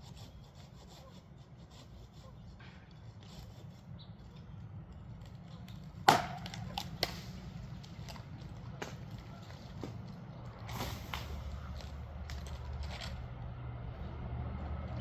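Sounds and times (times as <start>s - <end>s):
sharp wooden knock: 6.1s - 6.6s.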